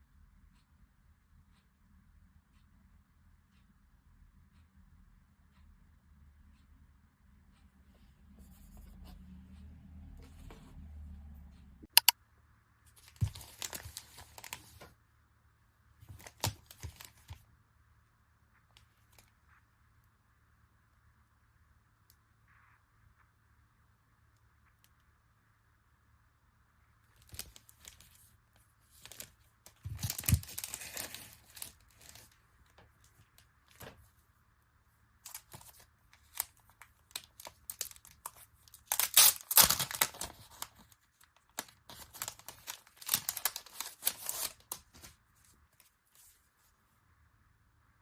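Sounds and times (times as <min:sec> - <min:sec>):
packaging torn and crinkled: 0:29.0 - 0:32.3, 0:35.3 - 0:45.1.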